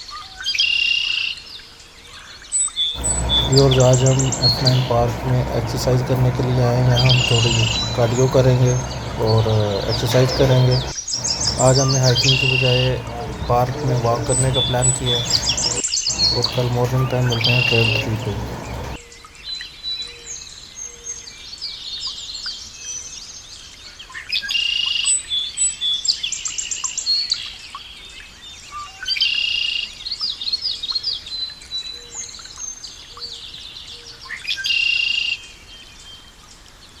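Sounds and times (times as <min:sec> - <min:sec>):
birds chirping and whistling: 0:03.0 - 0:19.0
loud dense bird call: 0:03.0 - 0:19.0.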